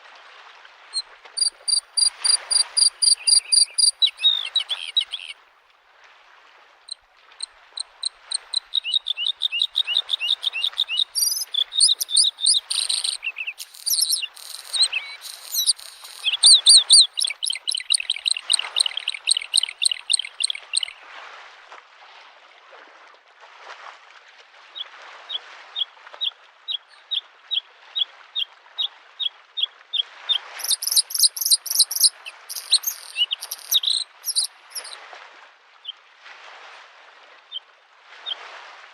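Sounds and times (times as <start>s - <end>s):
bird singing trills: 1.4s - 5.3s, 7.8s - 20.9s, 30.6s - 35.0s
small waves washing against shore: 7.4s - 21.5s.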